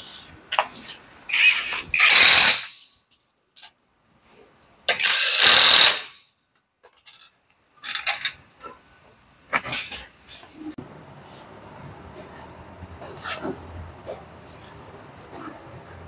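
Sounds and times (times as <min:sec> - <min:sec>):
pneumatic tool hissing blasts: 0:01.4 - 0:02.8, 0:05.0 - 0:06.2.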